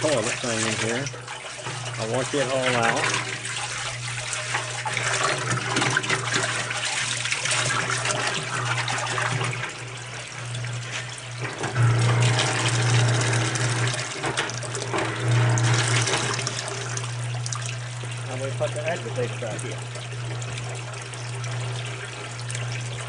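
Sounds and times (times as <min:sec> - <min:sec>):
hose water splashing in a tub: 0:00.0 - 0:23.0.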